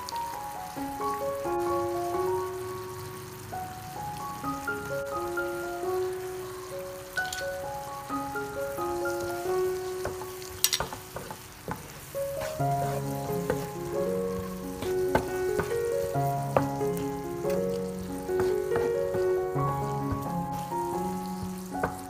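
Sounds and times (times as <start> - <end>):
food sizzling in frying pan: 0.0 - 22.0
light melodic background music: 0.0 - 22.0
spatula clicking against pan: 10.0 - 11.9.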